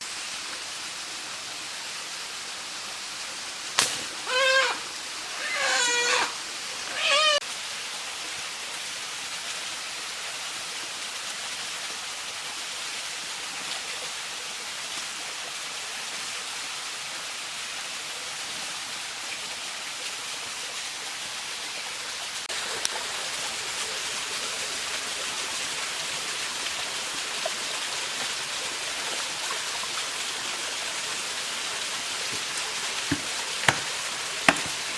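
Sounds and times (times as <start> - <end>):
falling water hiss: 0.0 - 34.9
wavering animal calls: 4.0 - 7.4.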